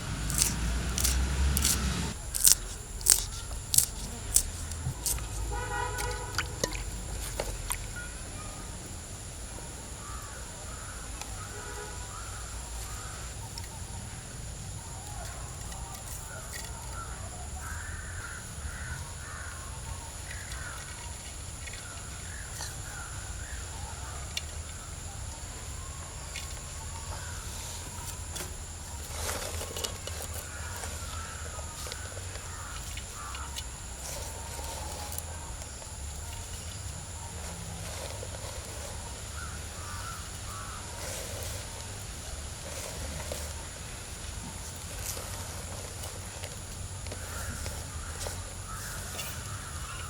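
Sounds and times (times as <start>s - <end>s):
crows cawing: 10.0s - 13.4s, 16.3s - 24.2s, 30.2s - 34.8s, 39.2s - 41.2s, 47.1s - 50.0s.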